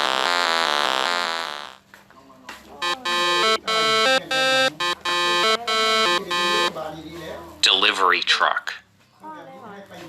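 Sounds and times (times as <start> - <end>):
electronic melody: 0.0 - 1.8, 2.8 - 6.8
buzzy electronic warbling tones: 2.8 - 6.8.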